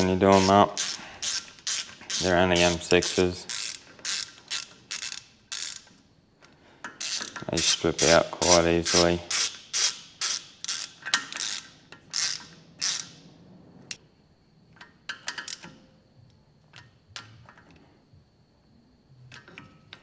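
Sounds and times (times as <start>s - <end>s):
socket ratchet clicking: 0.0s - 6.0s, 6.9s - 13.2s.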